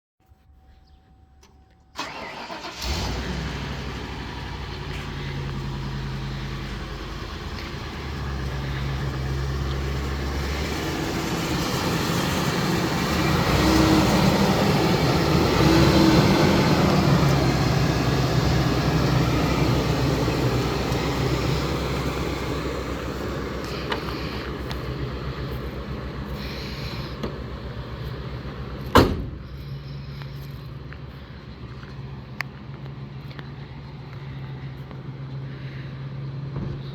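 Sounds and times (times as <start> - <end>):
truck engine cranking and running: 1.9 - 33.5.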